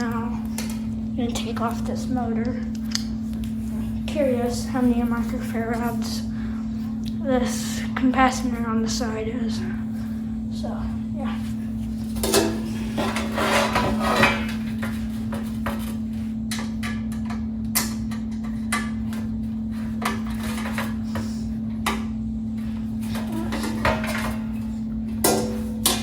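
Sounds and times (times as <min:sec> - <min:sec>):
steady low hum: 0:00.0 - 0:26.0
hand tools clicking and knocking: 0:25.2 - 0:26.0.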